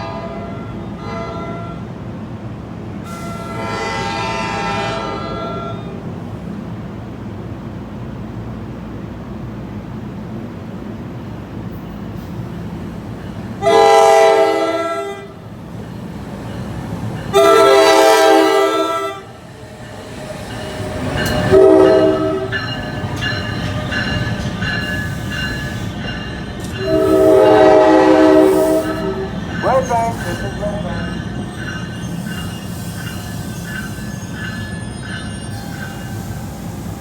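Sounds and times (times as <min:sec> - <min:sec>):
train horn blasts: 0:00.0 - 0:02.0, 0:03.1 - 0:06.0, 0:13.6 - 0:15.4, 0:17.3 - 0:19.4, 0:21.4 - 0:22.6, 0:26.8 - 0:29.4
train rumbling: 0:00.0 - 0:37.0.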